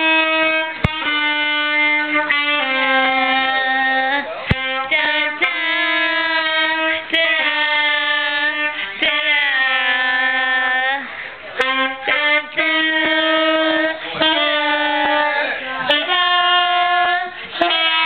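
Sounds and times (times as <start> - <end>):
slow tune of held notes: 11.6 - 18.0.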